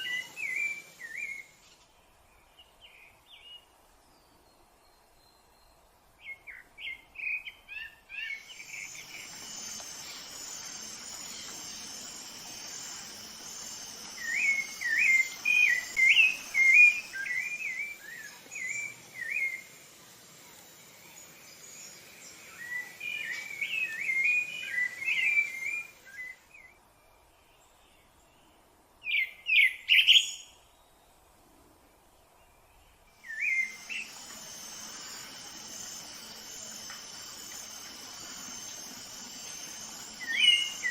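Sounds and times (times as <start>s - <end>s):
insect buzz: 0.0s - 2.1s, 8.1s - 26.7s, 33.1s - 40.9s.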